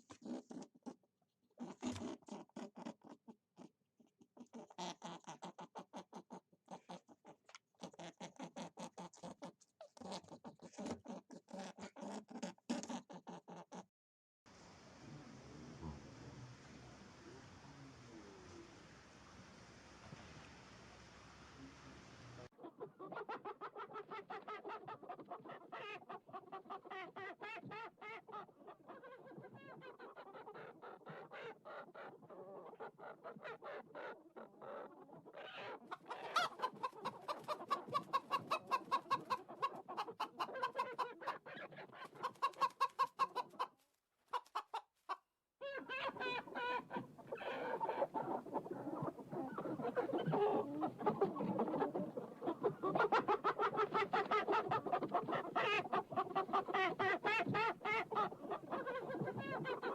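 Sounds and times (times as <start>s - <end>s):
chickens clucking: 4.4s - 13.8s, 22.5s - 59.9s.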